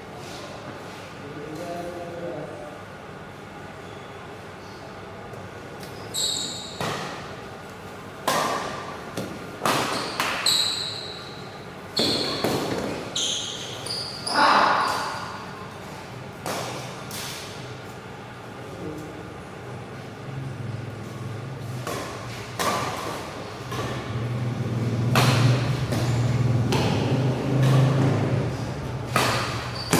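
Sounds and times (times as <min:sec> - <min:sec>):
shoes squeaking on court floor: 0:05.8 - 0:07.3, 0:09.2 - 0:16.0, 0:21.0 - 0:29.9
racket hitting shuttlecock: 0:08.2 - 0:10.4, 0:12.0 - 0:13.0, 0:21.6 - 0:29.9.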